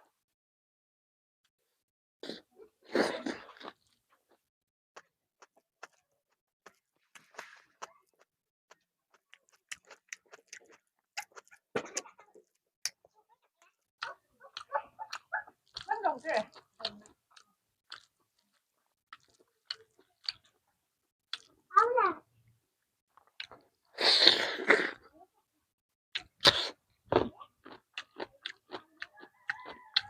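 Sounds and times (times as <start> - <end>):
person chewing: 2.2 - 4.4, 5.0 - 20.6, 21.2 - 21.6, 23.2 - 25.1, 26.1 - 30.0
mouth clicks and smacks: 5.0 - 18.1, 26.2 - 28.8.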